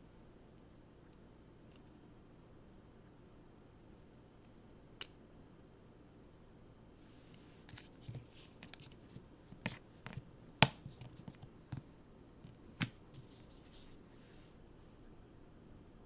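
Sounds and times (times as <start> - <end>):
clicks and taps of packaging handled: 7.7 - 13.3.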